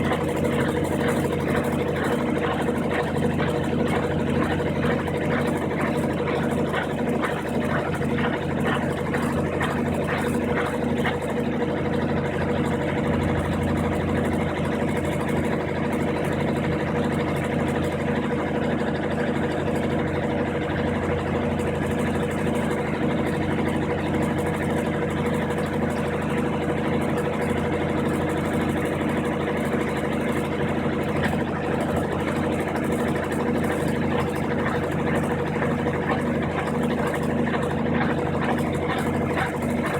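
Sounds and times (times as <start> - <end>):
washing machine spin cycle: 0.0 - 39.9
deep low note: 13.1 - 14.6.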